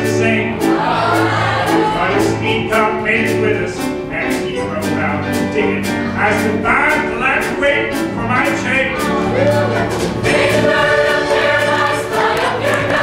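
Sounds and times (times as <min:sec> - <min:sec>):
held bass notes: 0:00.0 - 0:13.0
live country band playing: 0:00.0 - 0:13.0
steady drum beat: 0:06.8 - 0:13.0.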